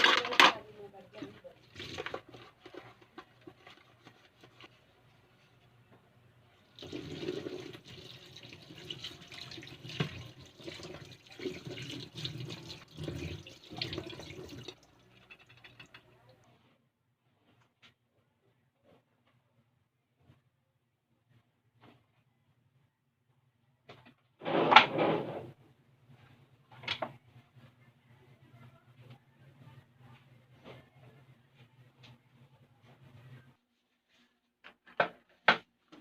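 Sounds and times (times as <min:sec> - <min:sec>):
faint handling sounds: 0:00.0 - 0:06.7, 0:15.4 - 0:24.4, 0:26.0 - 0:36.0
water running: 0:01.4 - 0:02.8, 0:06.6 - 0:16.4.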